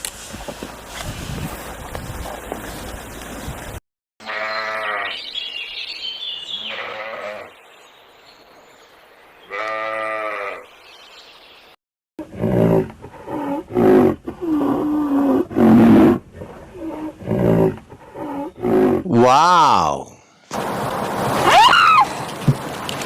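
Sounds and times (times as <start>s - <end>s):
farm animal bleating: 4.2s - 5.2s, 6.6s - 7.5s, 9.5s - 10.6s
roar: 12.2s - 19.3s.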